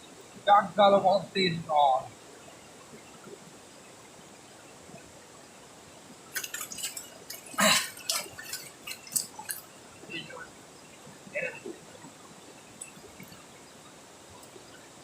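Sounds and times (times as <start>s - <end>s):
faint steady hiss: 0.0s - 15.0s
water splashing and dripping: 6.1s - 15.0s.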